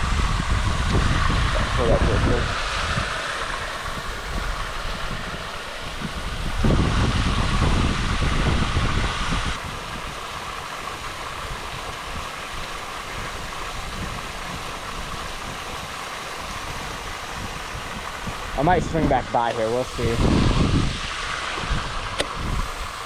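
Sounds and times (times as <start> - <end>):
steady outdoor hiss: 0.0 - 23.0
wind buffeting microphone: 0.0 - 23.0.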